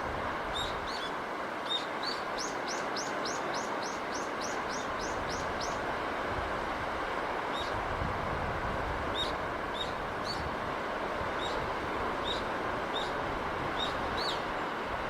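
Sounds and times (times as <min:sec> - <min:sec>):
small bird chirping: 0:01.7 - 0:05.8, 0:13.8 - 0:14.4.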